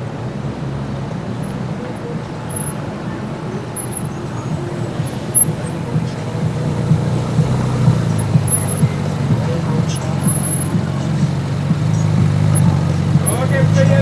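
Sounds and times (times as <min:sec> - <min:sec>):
car engine rumble: 0:00.0 - 0:14.0.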